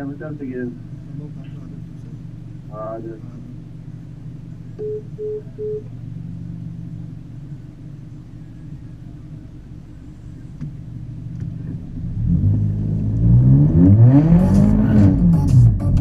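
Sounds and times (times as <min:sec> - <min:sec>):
car engine idling and revving: 0:00.0 - 0:16.0.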